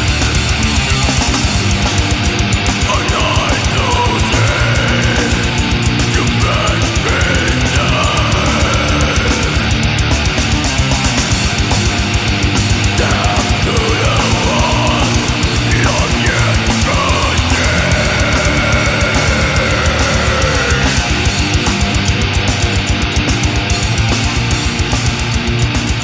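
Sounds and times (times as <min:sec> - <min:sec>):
heavy distorted guitars: 0:00.0 - 0:26.0.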